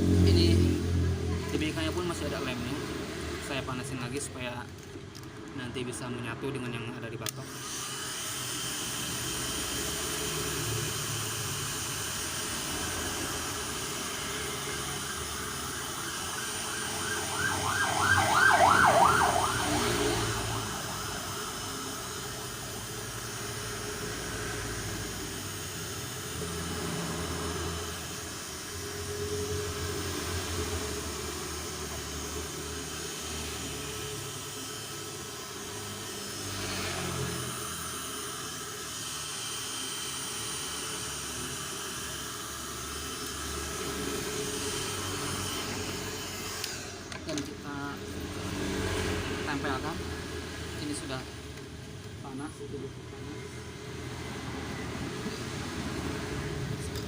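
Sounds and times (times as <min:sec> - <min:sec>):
heat gun blowing: 0:06.6 - 0:52.4.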